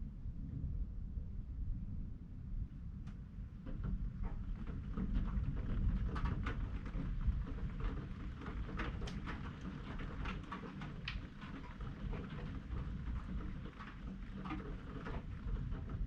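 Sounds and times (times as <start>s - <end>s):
raindrops pattering: 3.6s - 16.0s.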